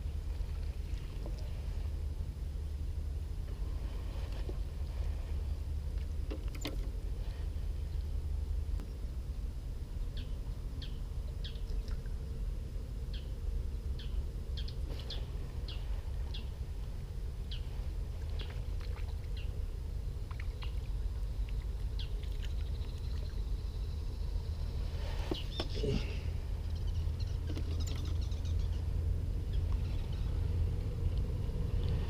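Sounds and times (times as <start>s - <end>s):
steady low rumble: 0.0s - 32.0s
small birds chirping: 10.0s - 12.1s, 13.0s - 16.6s, 17.4s - 19.7s, 20.3s - 24.4s, 25.2s - 30.5s.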